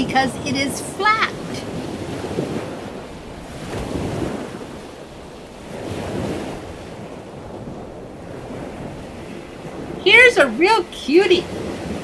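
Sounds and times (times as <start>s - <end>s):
ocean surf washing: 0.0s - 12.0s.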